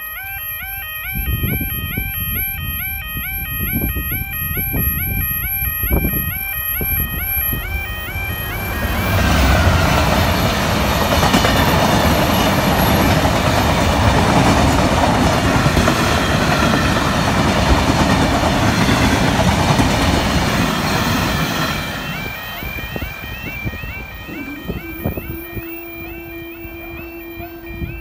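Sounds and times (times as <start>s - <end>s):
diesel locomotive engine passing: 6.8s - 28.0s
wagons rumbling over rails: 7.0s - 28.0s.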